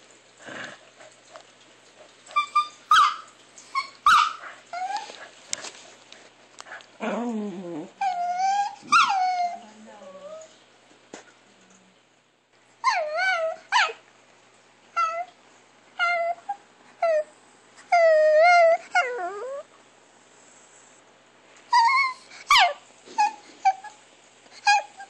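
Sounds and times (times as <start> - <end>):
small dog whimpering: 2.3 - 5.2, 7.0 - 10.6, 12.8 - 14.0, 15.0 - 15.4, 16.0 - 19.7, 21.7 - 24.0, 24.6 - 25.0.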